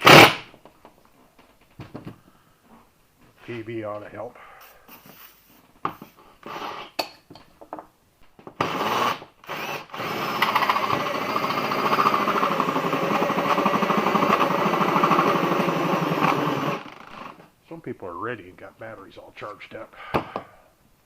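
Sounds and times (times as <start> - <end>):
cordless drill with hole saw cutting: 0.0 - 0.4, 6.4 - 6.9, 8.6 - 17.4.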